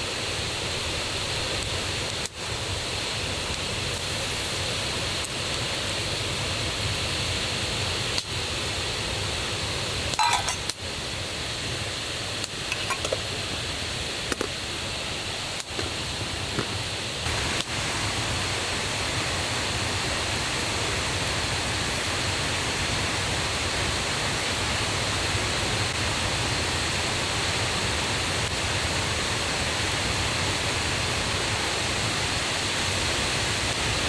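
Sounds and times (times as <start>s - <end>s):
light clinks and knocks: 10.2s - 10.7s
river and waterfall rushing: 17.2s - 21.2s.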